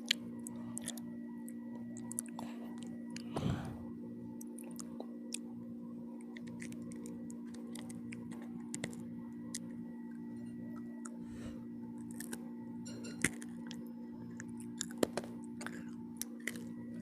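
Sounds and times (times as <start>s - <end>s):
person eating mouth clicks: 0.0s - 3.3s, 6.3s - 9.7s, 14.4s - 16.7s
steady low hum: 0.0s - 17.0s.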